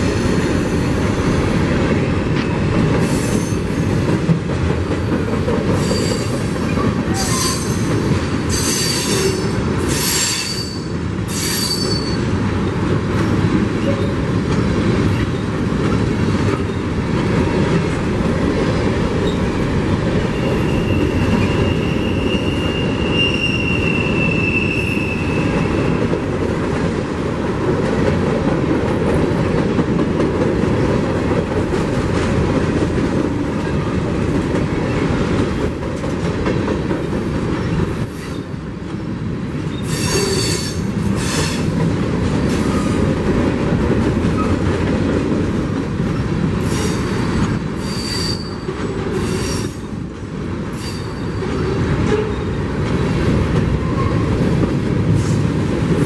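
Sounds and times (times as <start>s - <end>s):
train wheels rumbling: 0.0s - 56.0s
high-pitched wheel squeals: 8.5s - 12.2s, 20.3s - 26.0s, 47.8s - 49.8s, 50.8s - 51.4s.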